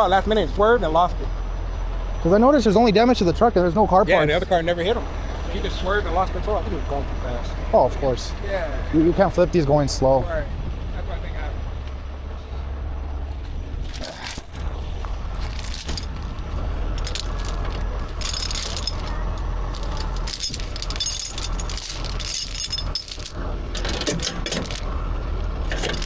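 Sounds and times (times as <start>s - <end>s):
low rumble: 8.3s - 26.0s
metallic clinking and jangling: 13.8s - 25.0s, 25.6s - 26.0s.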